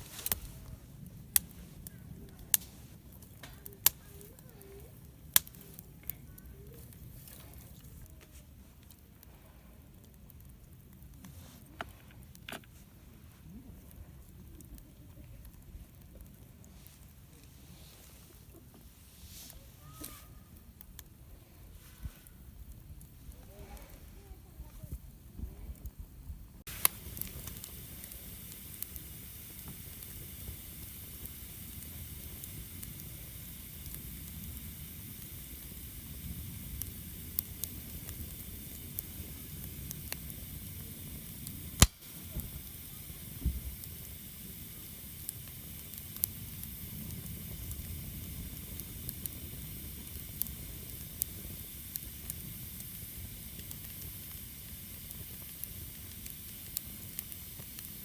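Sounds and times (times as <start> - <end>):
sharp snap of fire: 0.0 - 9.1, 26.6 - 58.0
campfire hissing and crackling: 0.0 - 58.0.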